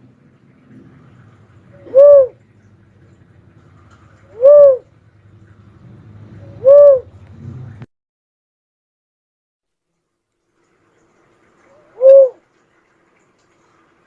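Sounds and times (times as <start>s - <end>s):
dove calling: 1.1s - 3.1s, 3.8s - 4.9s, 6.4s - 7.2s, 11.6s - 12.4s.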